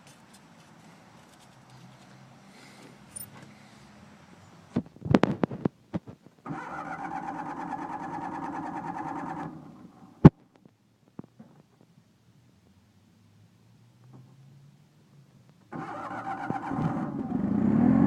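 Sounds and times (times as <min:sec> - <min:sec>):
starter cranking engine: 0:06.5 - 0:09.6, 0:15.7 - 0:17.8.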